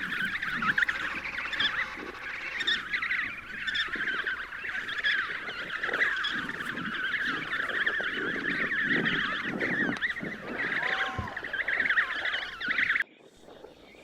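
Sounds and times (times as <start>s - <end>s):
penguin colony calling: 0.0s - 13.0s.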